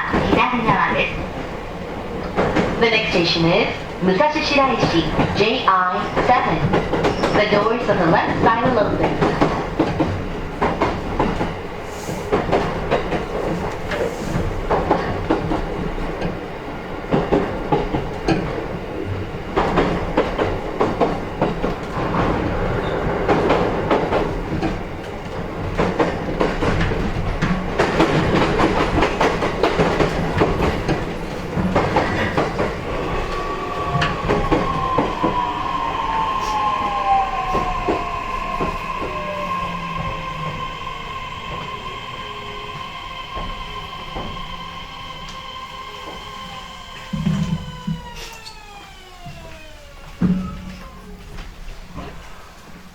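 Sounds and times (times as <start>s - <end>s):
train wheels clattering over rail joints: 4.6s - 16.4s, 17.1s - 35.5s.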